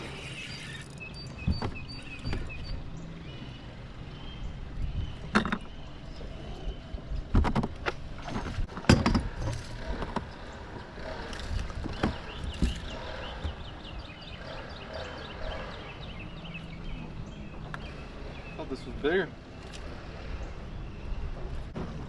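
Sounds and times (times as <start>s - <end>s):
knocks and clatter on boat: 1.3s - 2.8s, 4.9s - 5.8s, 7.1s - 14.0s, 21.2s - 22.0s
wind rumble on microphone: 1.3s - 22.0s.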